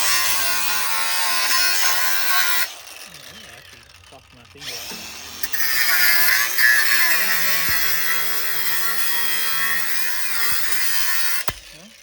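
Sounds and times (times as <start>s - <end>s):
angle grinder cutting sheet steel: 0.0s - 12.0s.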